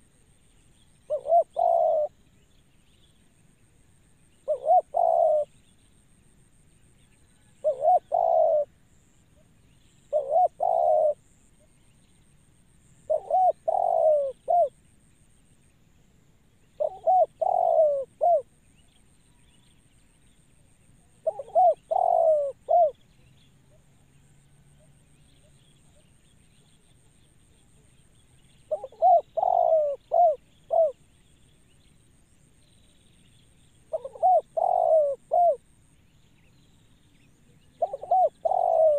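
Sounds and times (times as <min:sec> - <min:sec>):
dove cooing: 0:01.0 - 0:02.2, 0:04.4 - 0:05.6, 0:07.5 - 0:08.8, 0:10.1 - 0:11.3, 0:13.1 - 0:14.8, 0:16.8 - 0:18.5, 0:21.1 - 0:24.0, 0:28.6 - 0:31.0, 0:33.9 - 0:35.6, 0:37.5 - 0:38.9.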